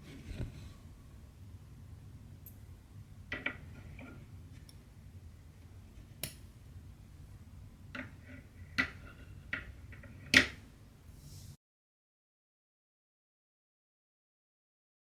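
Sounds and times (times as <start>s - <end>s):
low room hum: 0.0s - 11.6s.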